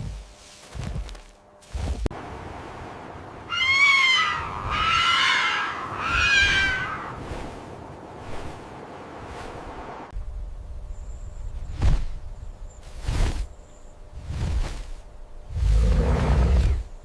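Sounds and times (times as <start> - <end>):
animal calling high cry: 3.5 - 7.2.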